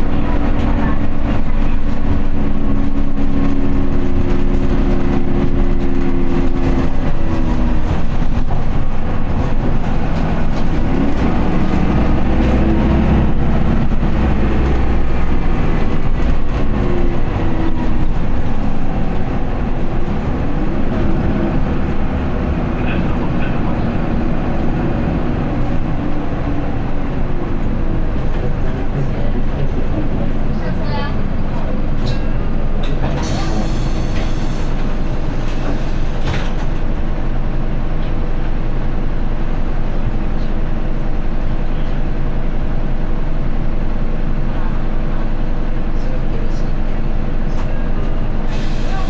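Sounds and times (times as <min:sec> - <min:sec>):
bus diesel engine: 0:00.0 - 0:49.0
road rumble: 0:00.0 - 0:49.0.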